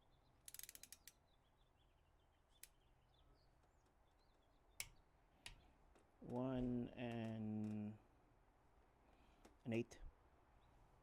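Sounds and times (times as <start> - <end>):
faint bird chirps: 0.0 - 5.8
small clicks of hand tools: 0.4 - 1.2, 7.1 - 7.8.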